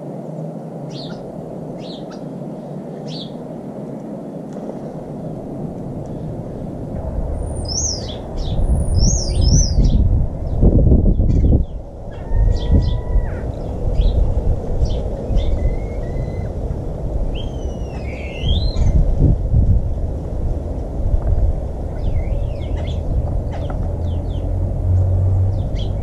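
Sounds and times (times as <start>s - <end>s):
garden birds calling: 0.9s - 3.5s, 7.4s - 19.1s, 21.9s - 26.0s
loud low rumble: 5.6s - 26.0s.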